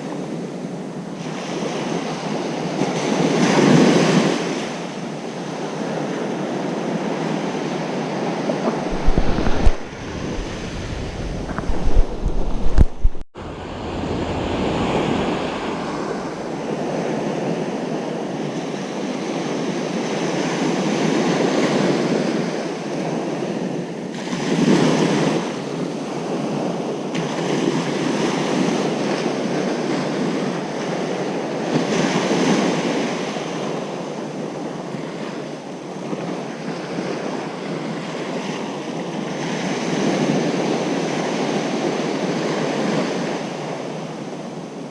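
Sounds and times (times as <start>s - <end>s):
wind buffeting microphone: 5.9s - 30.7s
ocean surf breaking: 6.2s - 22.6s.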